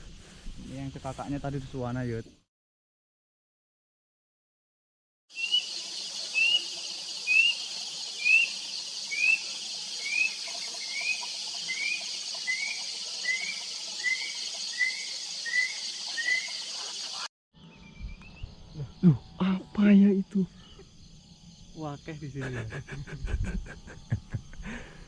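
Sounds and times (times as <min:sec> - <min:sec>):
high insect drone: 0:05.3 - 0:25.0
bird whistling rising notes: 0:05.4 - 0:19.0.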